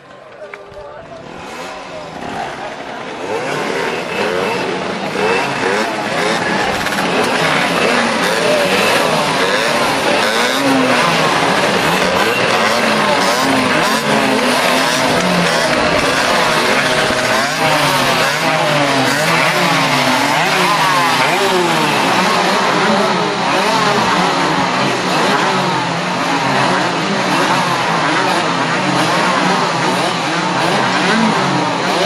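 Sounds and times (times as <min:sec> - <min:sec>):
two-stroke motorcycles revving: 0:00.0 - 0:32.0.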